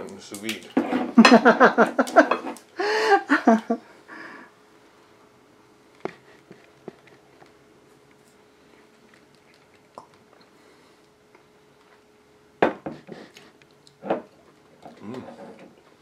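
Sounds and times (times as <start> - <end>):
faint steady hum: 0.0 - 16.0
man chewing: 5.9 - 12.1, 13.0 - 16.0
murmured sounds: 14.9 - 15.6.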